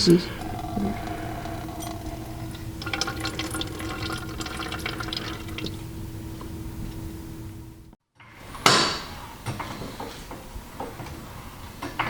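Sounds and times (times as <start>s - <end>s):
fluid spitting and dripping: 0.0s - 6.8s.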